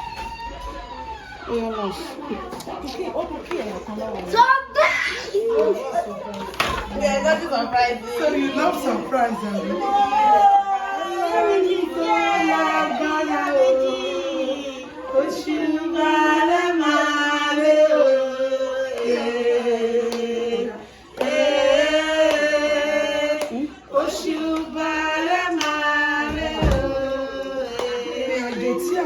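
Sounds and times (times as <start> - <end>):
voices singing long notes: 9.7 - 29.0.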